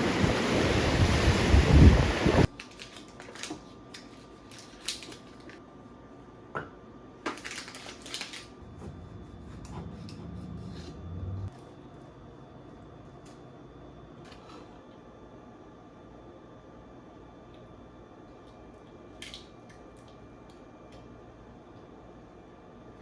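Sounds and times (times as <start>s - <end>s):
wind on microphone: 0.0s - 2.5s
faint low hum: 8.2s - 14.4s.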